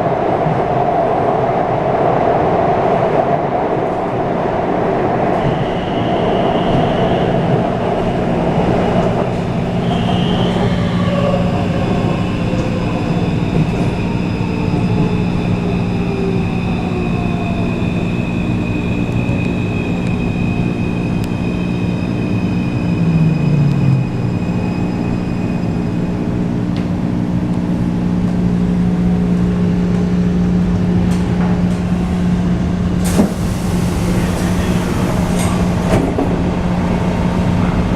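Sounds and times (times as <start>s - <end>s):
train rumble and drone: 0.0s - 37.9s.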